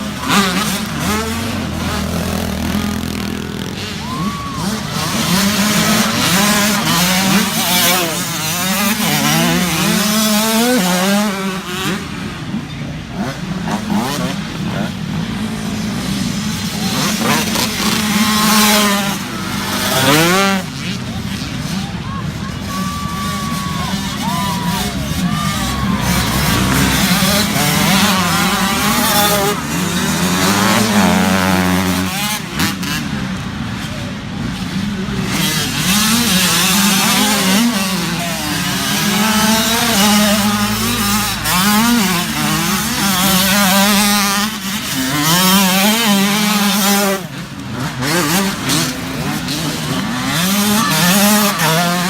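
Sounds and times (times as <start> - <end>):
dirt bike engines revving: 0.0 - 52.0.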